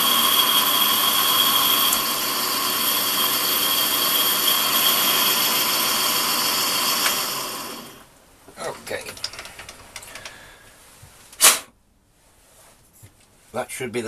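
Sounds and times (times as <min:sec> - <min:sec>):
metal lathe whining: 0:00.0 - 0:08.1.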